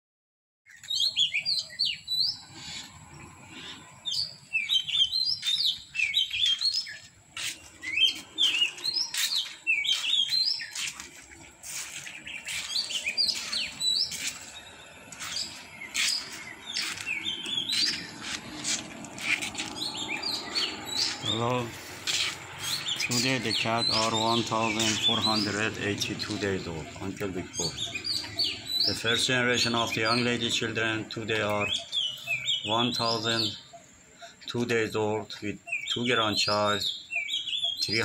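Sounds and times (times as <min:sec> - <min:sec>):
small birds chirping: 0:00.7 - 0:38.0.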